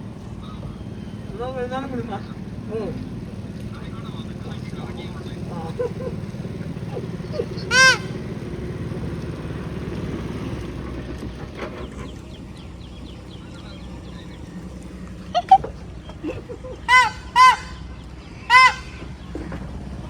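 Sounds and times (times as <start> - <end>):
boat engine running: 0.0 - 20.0
horn honks: 7.6 - 8.4, 16.8 - 19.3.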